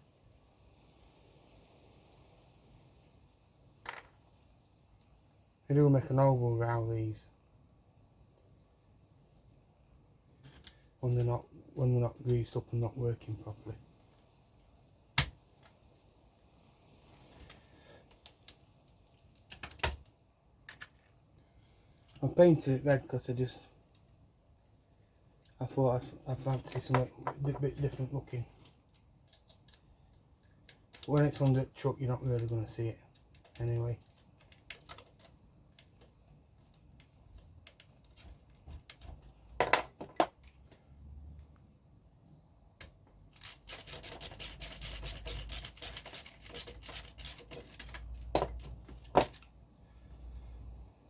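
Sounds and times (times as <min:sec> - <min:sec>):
small parts clicking and tapping: 0:17.4 - 0:21.2, 0:28.5 - 0:31.6, 0:32.2 - 0:40.8, 0:42.8 - 0:49.5.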